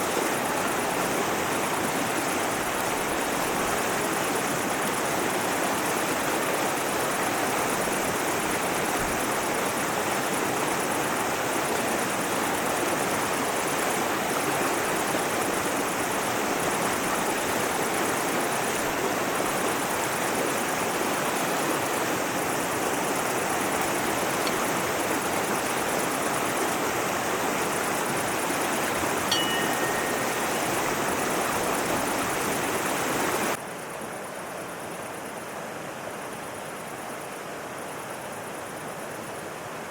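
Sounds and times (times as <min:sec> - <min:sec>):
short high chirp: 0:29.3 - 0:31.0.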